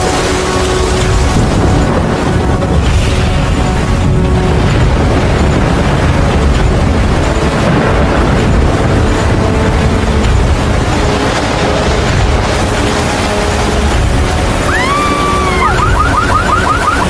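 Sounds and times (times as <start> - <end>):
storm wind buffeting microphone: 0.0 - 17.0
car alarm wailing and chirping: 14.7 - 17.0.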